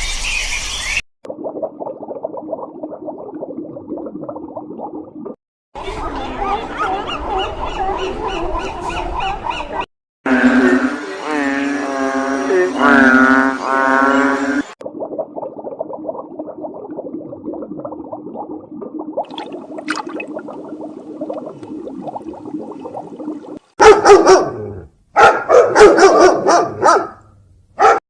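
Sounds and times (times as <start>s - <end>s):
dog barking: 23.8s - 27.2s, 27.8s - 28.0s.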